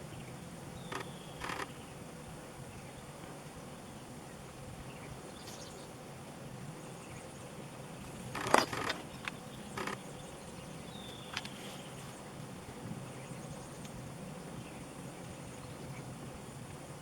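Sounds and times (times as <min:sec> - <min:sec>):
softer clicks: 0:08.4 - 0:10.0.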